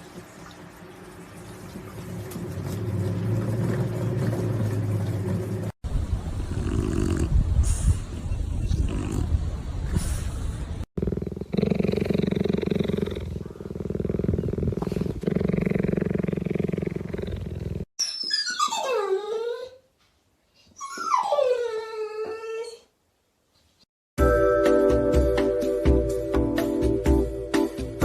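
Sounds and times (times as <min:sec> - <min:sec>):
dog growling: 0:06.5 - 0:07.4, 0:11.0 - 0:17.9
dog whining howls: 0:18.2 - 0:19.8, 0:20.8 - 0:22.9.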